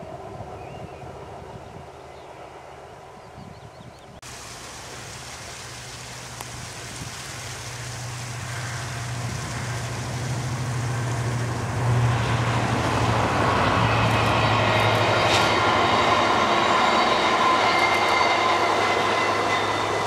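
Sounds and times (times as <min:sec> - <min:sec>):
locomotive engine hum: 0:04.0 - 0:20.0
train rumble: 0:04.2 - 0:20.0.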